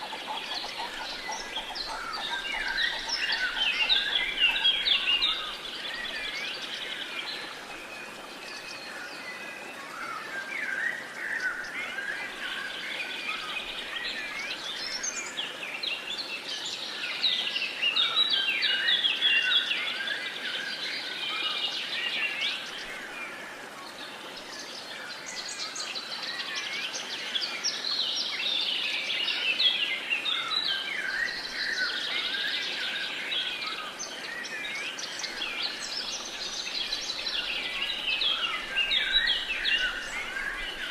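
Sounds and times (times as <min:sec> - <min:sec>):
birds chirping and singing: 0:00.0 - 0:07.4, 0:30.4 - 0:40.9.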